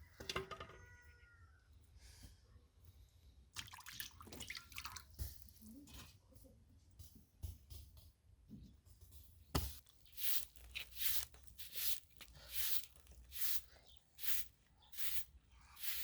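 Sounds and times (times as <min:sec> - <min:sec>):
swishing rubbing strokes: 0:10.1 - 0:16.0.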